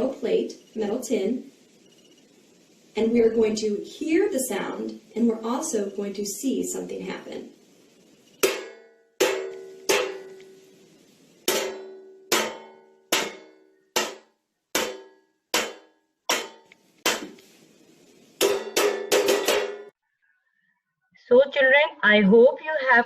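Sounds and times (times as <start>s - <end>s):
metal spoon striking baking pan: 8.4s - 10.6s, 11.5s - 17.4s, 18.4s - 19.9s.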